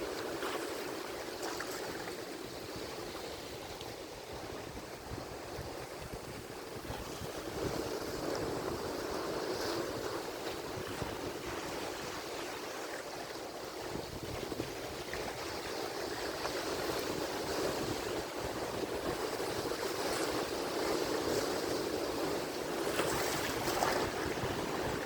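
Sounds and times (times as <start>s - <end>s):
ocean waves breaking: 0.0s - 25.0s.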